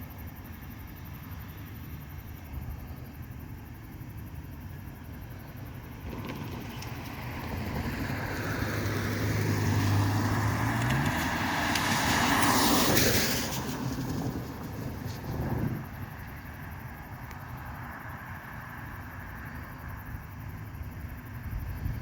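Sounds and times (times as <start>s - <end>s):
vehicle passing by: 5.8s - 16.8s.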